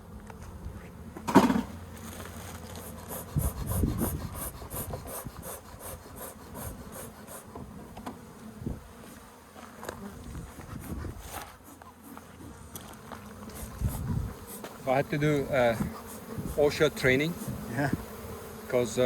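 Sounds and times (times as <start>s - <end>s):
honeybees buzzing: 0.0s - 19.0s
scraping strokes on wood: 2.0s - 7.7s, 10.3s - 17.7s.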